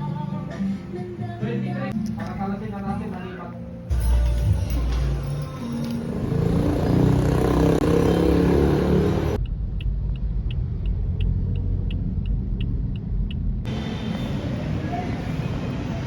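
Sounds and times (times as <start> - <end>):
car road and engine rumble: 3.6 - 16.0.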